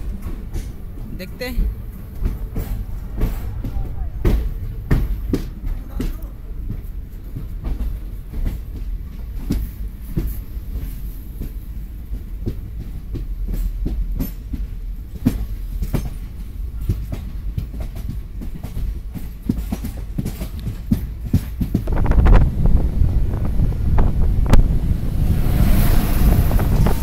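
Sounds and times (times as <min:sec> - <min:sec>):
train wheels clacking over rail joints: 0:00.0 - 0:22.5
train coach low rumble: 0:00.0 - 0:27.0.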